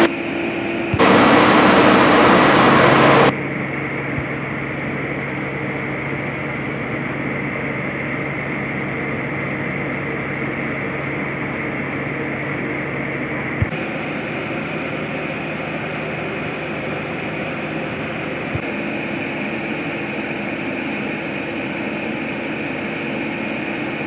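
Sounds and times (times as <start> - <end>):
loud hiss: 1.0 - 3.3
workshop machinery humming: 1.0 - 3.3.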